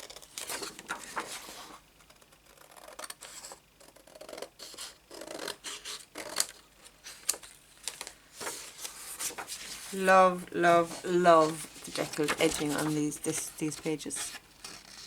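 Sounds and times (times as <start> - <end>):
paper scraping: 8.4 - 15.0.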